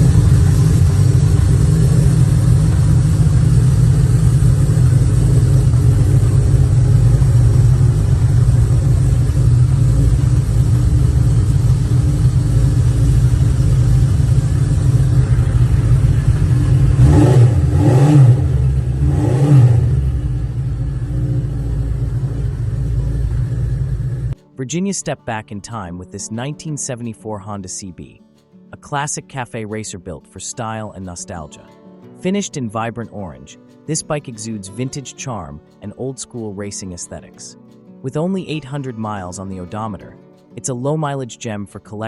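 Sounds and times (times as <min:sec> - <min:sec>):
motorcycle engine idling and revving: 0:00.0 - 0:24.4.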